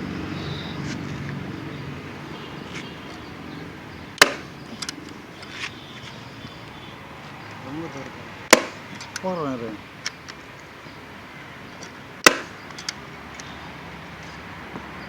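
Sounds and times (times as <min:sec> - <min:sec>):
sharp knock: 0:04.2 - 0:04.5, 0:08.5 - 0:08.8, 0:12.2 - 0:12.6.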